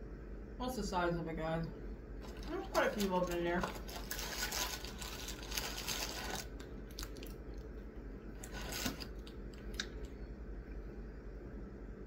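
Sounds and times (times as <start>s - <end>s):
packaging rustling: 2.2s - 7.3s, 8.4s - 9.3s.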